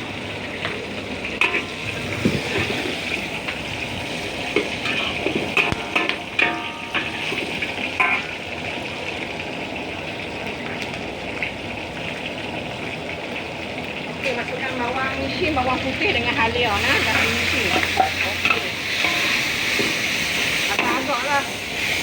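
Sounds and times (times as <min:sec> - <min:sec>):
oil sizzling in a pan: 0:00.0 - 0:22.0
spatula scraping a pan: 0:04.2 - 0:08.3, 0:16.7 - 0:22.0.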